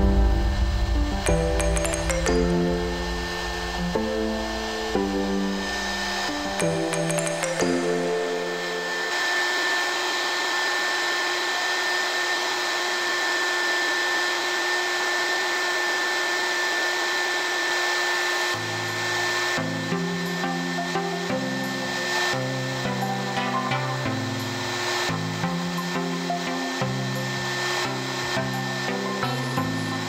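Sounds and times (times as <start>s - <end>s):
upbeat background music: 0.0s - 9.2s, 18.6s - 30.0s
hot air gun blowing: 0.4s - 30.0s.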